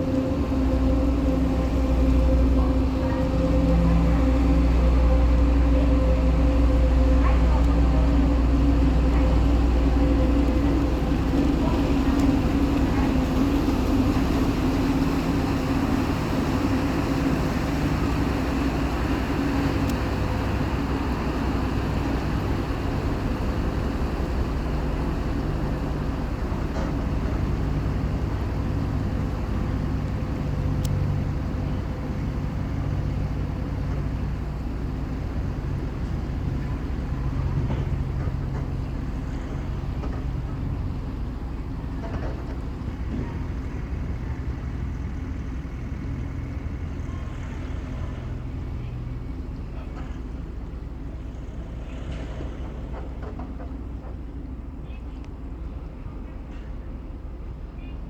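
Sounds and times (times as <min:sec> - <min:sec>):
higher drone: 0:00.0 - 0:33.8
ship diesel engines humming: 0:00.0 - 0:58.0.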